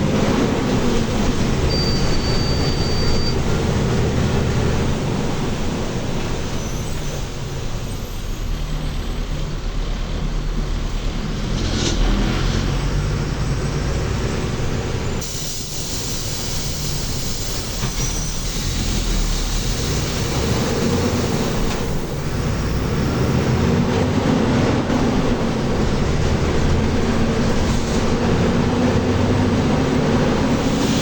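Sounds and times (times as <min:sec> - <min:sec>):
bus diesel engine drone: 0:00.0 - 0:31.0
road noise: 0:00.0 - 0:31.0
hissing rush of air: 0:15.2 - 0:23.4, 0:30.4 - 0:31.0.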